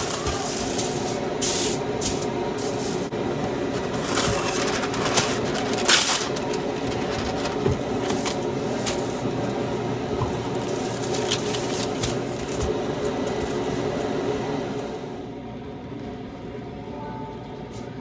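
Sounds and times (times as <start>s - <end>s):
utensils clicking and clinking: 0.0s - 9.6s, 10.2s - 13.5s
appliance hum: 0.0s - 18.0s.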